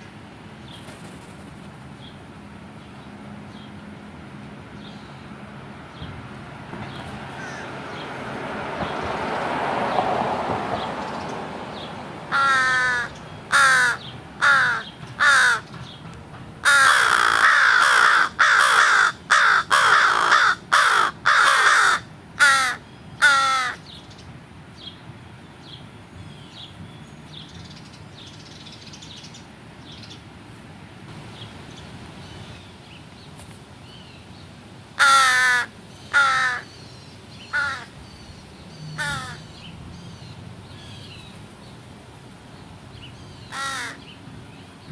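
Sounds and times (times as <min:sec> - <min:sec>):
broad rush of noise: 0:00.0 - 0:44.9
crows cawing: 0:07.4 - 0:07.8, 0:12.3 - 0:15.7, 0:16.6 - 0:23.8, 0:35.0 - 0:36.8, 0:37.5 - 0:38.0, 0:38.9 - 0:39.5, 0:43.5 - 0:44.0.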